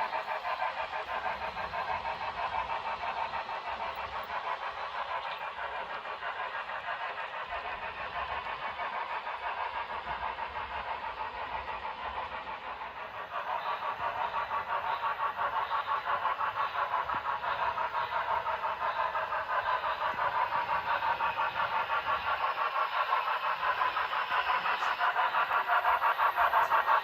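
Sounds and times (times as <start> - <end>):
model train running past: 0.0 - 27.0.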